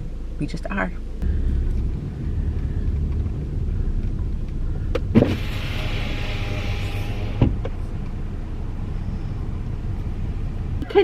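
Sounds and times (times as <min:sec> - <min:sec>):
car engine and road rumble: 0:00.0 - 0:11.0
window stopping with a thump: 0:05.0 - 0:07.8
hiss of outside air: 0:05.1 - 0:07.7.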